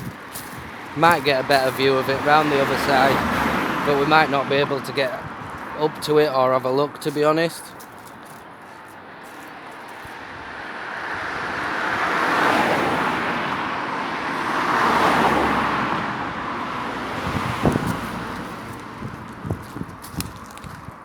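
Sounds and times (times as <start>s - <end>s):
cars passing: 0.0s - 21.0s.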